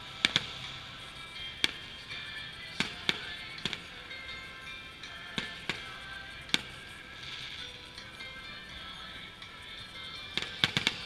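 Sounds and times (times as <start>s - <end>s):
fireworks bangs: 0.0s - 1.0s, 2.7s - 4.4s, 5.3s - 7.7s, 10.4s - 11.0s
background music: 0.0s - 11.0s.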